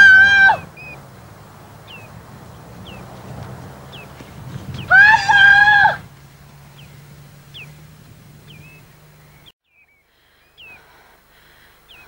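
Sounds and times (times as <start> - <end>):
whistled bird calls: 0.0 - 3.2, 6.7 - 10.9.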